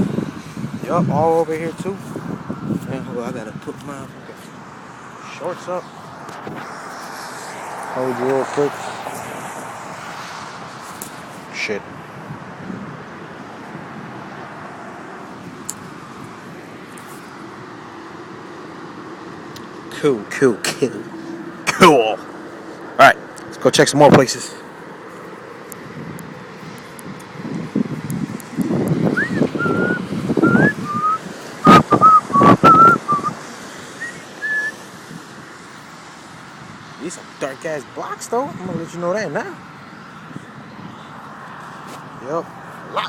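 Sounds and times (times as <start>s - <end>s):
rustling walking and handling: 24.6s - 28.6s, 41.1s - 43.0s
person whistling a tune: 29.2s - 33.3s, 34.0s - 34.8s.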